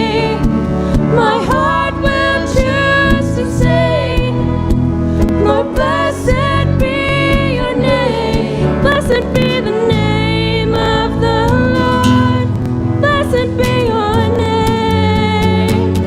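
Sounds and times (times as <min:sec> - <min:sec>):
people singing: 0:00.0 - 0:12.5
worship band accompaniment: 0:00.0 - 0:16.0.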